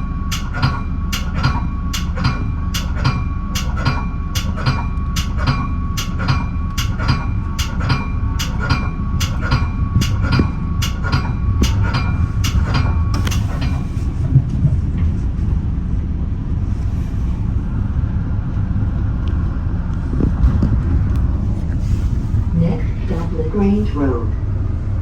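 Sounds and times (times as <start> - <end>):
bell ringing: 0.0 - 13.9
train rumbling: 0.0 - 25.0.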